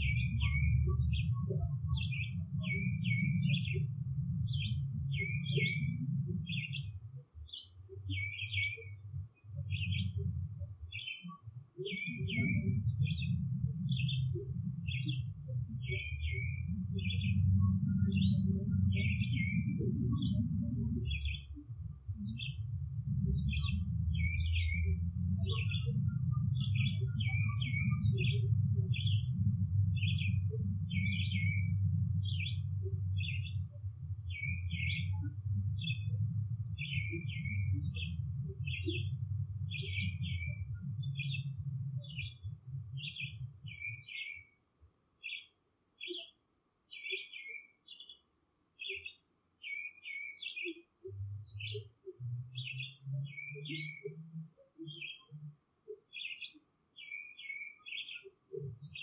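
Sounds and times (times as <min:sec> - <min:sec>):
loud low rumbling: 0:00.0 - 0:06.8, 0:12.3 - 0:43.9
bird chirping sharp phrases: 0:00.0 - 0:44.6, 0:45.2 - 0:59.0.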